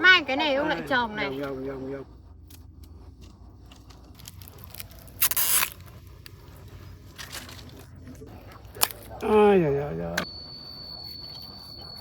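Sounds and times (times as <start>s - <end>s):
pineapple crunching: 4.0s - 5.9s.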